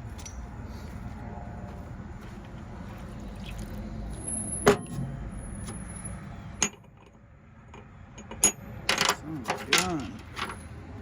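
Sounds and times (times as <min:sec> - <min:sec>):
metal parts clinking: 0:08.2 - 0:10.8.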